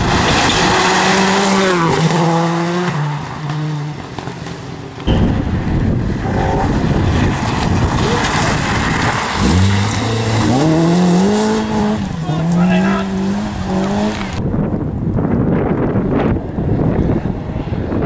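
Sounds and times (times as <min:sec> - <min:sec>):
loud rough rumble: 0:05.0 - 0:18.0
engine revving: 0:06.1 - 0:14.4.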